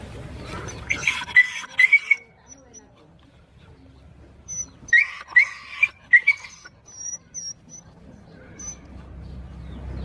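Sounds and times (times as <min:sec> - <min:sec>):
animal squeaking calls: 0:00.6 - 0:02.9, 0:04.4 - 0:09.0.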